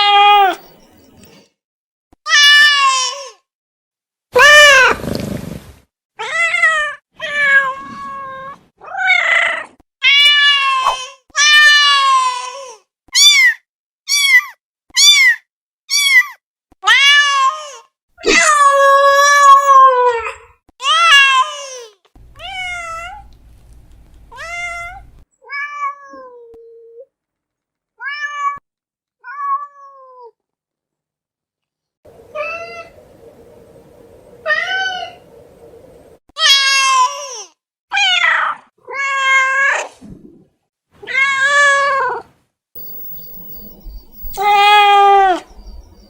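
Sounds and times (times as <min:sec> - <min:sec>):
cat meowing: 0:00.0 - 0:00.6, 0:22.4 - 0:23.3, 0:24.3 - 0:26.4, 0:44.3 - 0:45.5.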